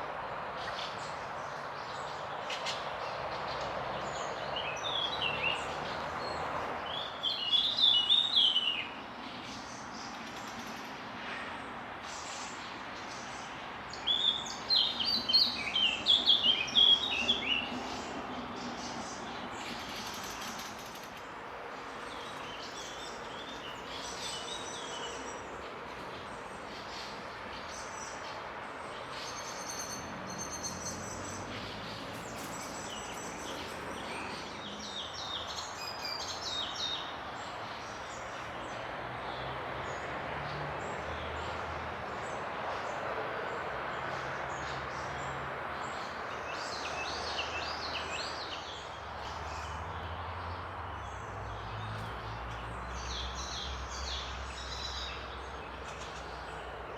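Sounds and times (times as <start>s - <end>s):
small birds chirping: 12.0s - 38.9s.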